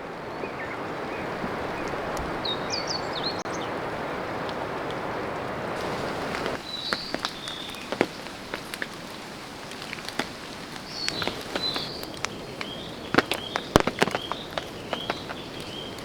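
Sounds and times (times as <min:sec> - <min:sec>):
small bird chirping: 0:10.8 - 0:16.0
sharp taps: 0:13.1 - 0:15.4.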